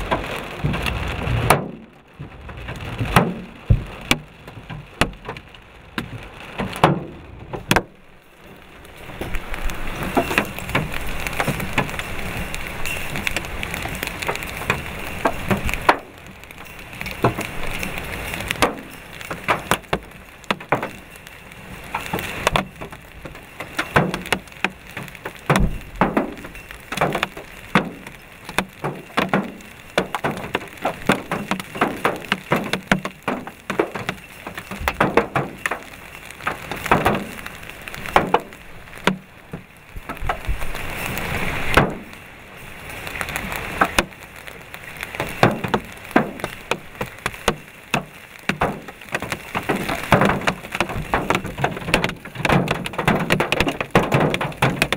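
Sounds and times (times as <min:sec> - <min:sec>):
hailstones striking hard surfaces: 0:00.0 - 0:54.9
rain hiss: 0:00.0 - 0:54.9.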